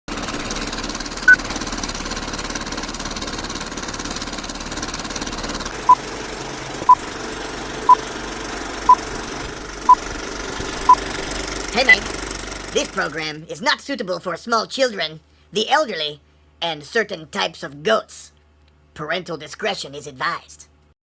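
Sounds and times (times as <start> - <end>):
mechanical rattle: 5.6 - 12.8
short electronic beeps: 11.8 - 12.1.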